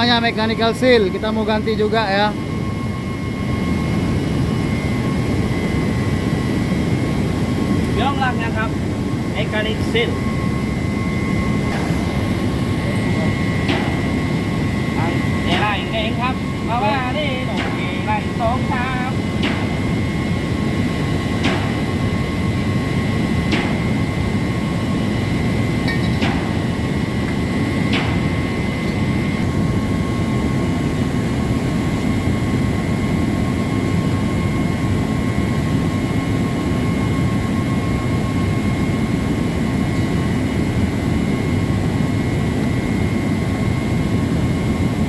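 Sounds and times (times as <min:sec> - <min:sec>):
machinery droning with high whine: 0:00.0 - 0:45.0
sharp knocks: 0:19.4 - 0:19.8, 0:21.4 - 0:21.9, 0:23.5 - 0:24.0, 0:25.8 - 0:26.7, 0:27.9 - 0:28.3.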